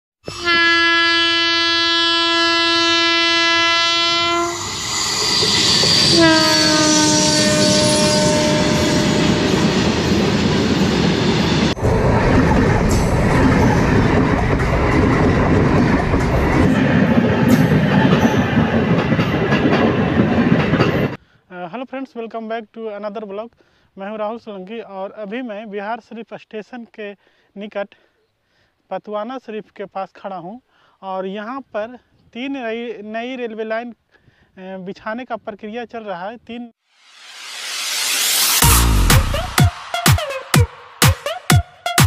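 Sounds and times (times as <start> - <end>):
train horn blasts: 0.2 - 4.8, 6.0 - 9.8
train wheels rumbling and clattering: 9.3 - 21.2.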